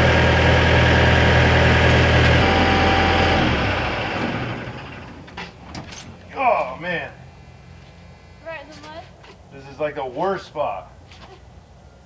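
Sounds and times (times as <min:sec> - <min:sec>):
engine idling and shutting off: 0:00.0 - 0:05.8.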